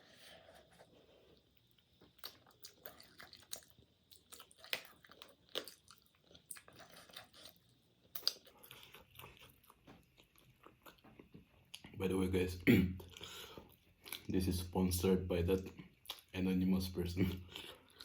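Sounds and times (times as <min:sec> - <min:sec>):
person chewing food: 0:00.0 - 0:12.0, 0:13.0 - 0:14.4, 0:15.6 - 0:16.3, 0:17.2 - 0:18.0
wet mouth clicks: 0:08.1 - 0:08.4.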